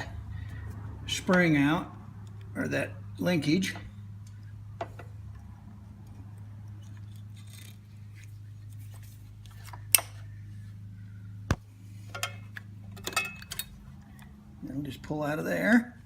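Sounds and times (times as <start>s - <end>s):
steady low hum: 0.0s - 16.0s
small metal clicks and clinks: 12.1s - 14.3s.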